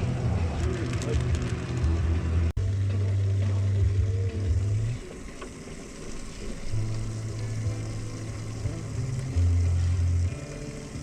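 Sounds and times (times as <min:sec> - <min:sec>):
outboard motor droning: 0:03.0 - 0:11.0.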